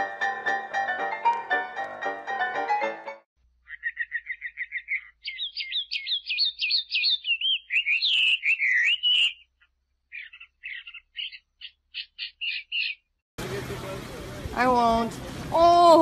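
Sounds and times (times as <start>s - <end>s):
small songbird singing: 3.6s - 13.2s.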